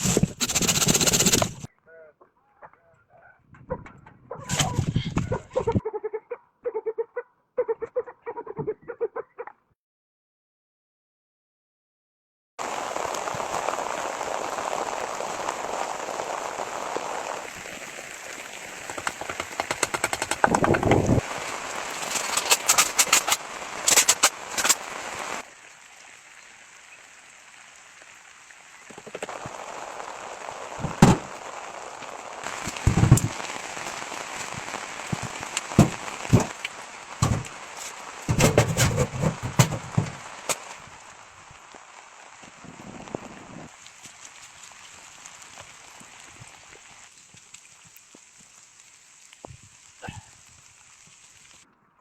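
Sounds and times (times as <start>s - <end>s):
rain hissing: 0.0s - 1.7s, 12.6s - 52.0s
wood fire crackling and popping: 0.0s - 1.7s, 12.6s - 51.6s.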